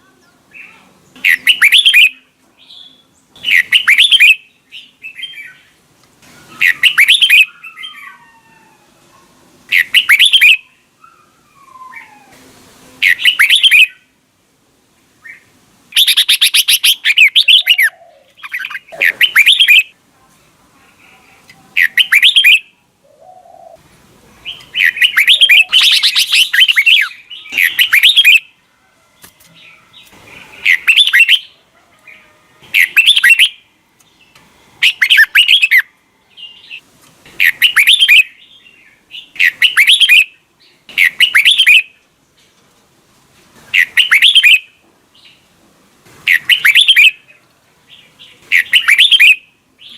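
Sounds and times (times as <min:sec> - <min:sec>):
bird singing warbled phrases: 0:00.0 - 0:05.8, 0:06.4 - 0:08.3, 0:09.7 - 0:12.3, 0:13.0 - 0:14.1, 0:15.2 - 0:20.0, 0:20.9 - 0:28.6, 0:29.6 - 0:42.0, 0:43.7 - 0:45.5, 0:46.2 - 0:49.9
faint bird chirps: 0:13.0 - 0:14.1, 0:15.2 - 0:20.0, 0:20.9 - 0:23.8, 0:24.4 - 0:36.8, 0:48.0 - 0:49.9.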